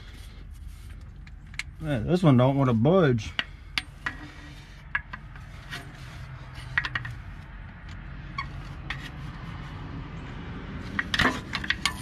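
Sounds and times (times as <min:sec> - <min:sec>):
low steady hum: 0:00.0 - 0:12.0
metal tool clicking and scraping: 0:10.9 - 0:12.0.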